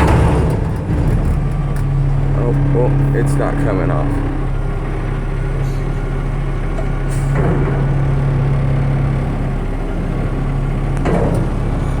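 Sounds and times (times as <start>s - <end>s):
garbage truck engine running: 0.0s - 12.0s
sharp clunk: 11.0s - 12.0s.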